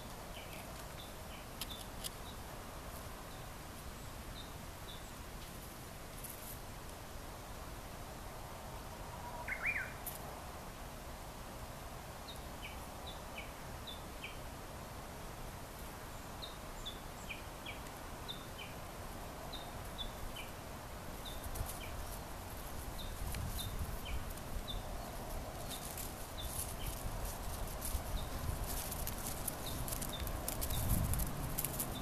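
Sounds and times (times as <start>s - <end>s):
outdoor background noise: 0.0s - 32.0s
small bird chirping: 9.4s - 10.0s, 21.2s - 32.0s.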